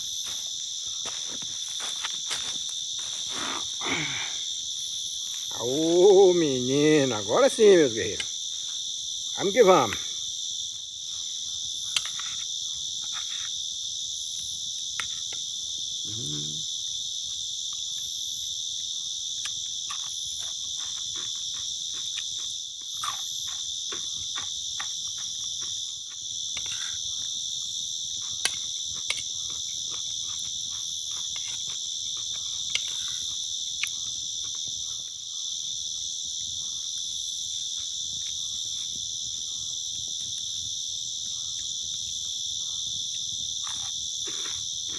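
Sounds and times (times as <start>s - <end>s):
forest insects chorus: 0.0s - 44.9s
low animal call: 16.0s - 16.7s.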